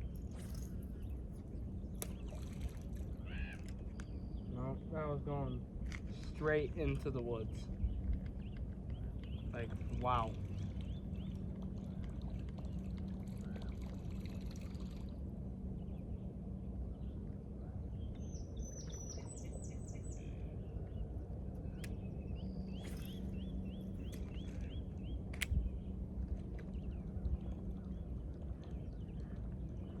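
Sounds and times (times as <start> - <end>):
constant low hum: 0.0 - 30.0
low rumble: 0.0 - 30.0
small birds chirping: 17.9 - 26.0.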